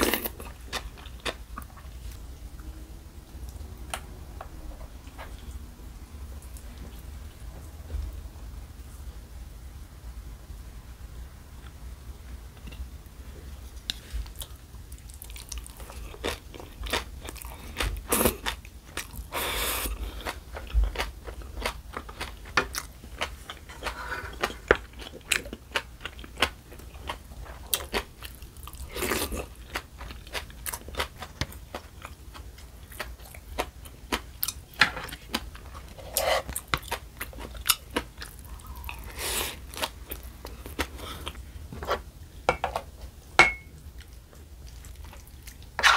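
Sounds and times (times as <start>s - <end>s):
chewing and crunching food: 0.0s - 2.7s, 13.6s - 42.1s, 43.8s - 45.9s.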